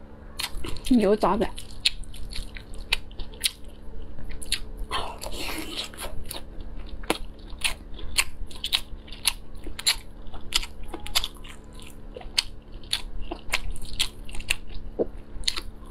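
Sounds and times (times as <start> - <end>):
wet chewing clicks and smacks: 1.6 - 15.9.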